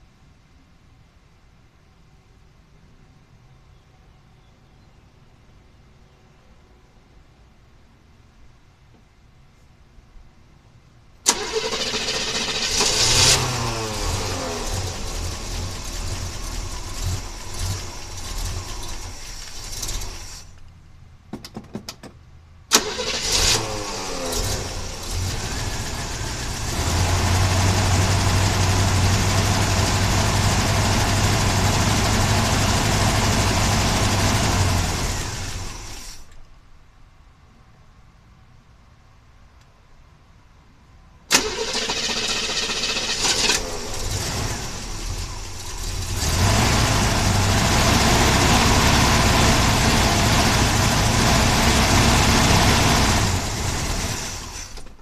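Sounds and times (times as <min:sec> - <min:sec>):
car engine running: 0:12.1 - 0:20.6, 0:23.3 - 0:36.0, 0:42.7 - 0:54.9.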